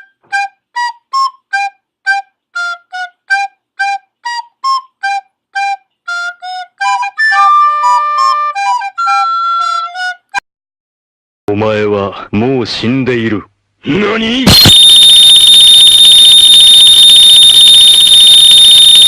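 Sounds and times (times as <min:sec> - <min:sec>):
flute-like melody: 0:00.0 - 0:10.4, 0:14.5 - 0:19.0.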